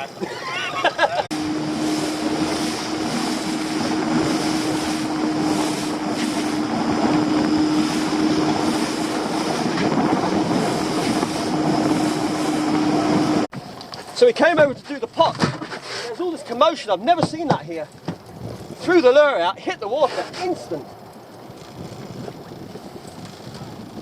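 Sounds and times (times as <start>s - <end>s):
boat engine droning: 0.0s - 13.9s
wind and water rushing: 0.0s - 24.0s.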